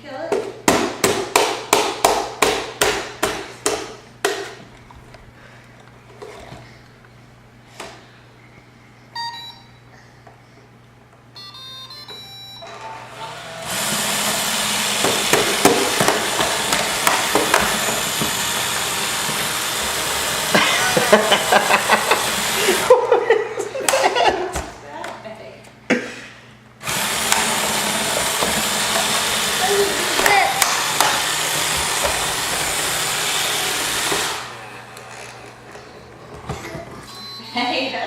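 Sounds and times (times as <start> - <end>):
electronic beep tune: 9.2 - 9.8, 11.4 - 12.6, 37.1 - 38.0
robot vacuum motor and brushes: 12.7 - 23.0, 26.8 - 37.1.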